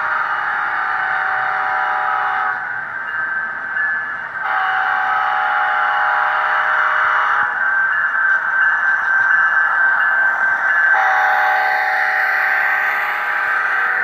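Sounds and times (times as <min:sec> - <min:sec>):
model locomotive horn blasts: 0:00.0 - 0:02.6, 0:04.4 - 0:07.6, 0:11.0 - 0:14.0.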